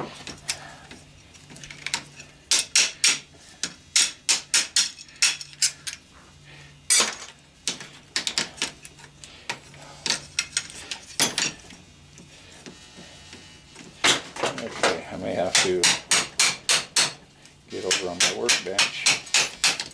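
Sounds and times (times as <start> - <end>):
hammer tapping on metal: 15.5 - 17.2, 17.9 - 19.9.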